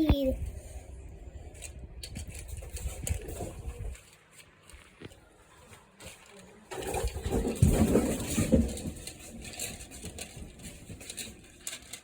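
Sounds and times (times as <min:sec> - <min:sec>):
plastic pieces rustling and knocking: 0:06.0 - 0:12.0.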